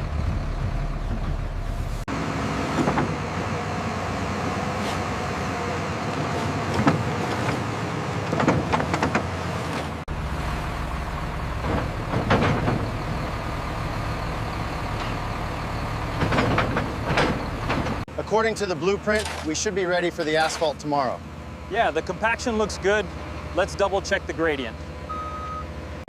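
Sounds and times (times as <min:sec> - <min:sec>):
diesel construction machinery running: 0:00.0 - 0:26.0
metallic clanks and knocks: 0:11.6 - 0:13.2, 0:16.1 - 0:18.1, 0:19.1 - 0:19.6.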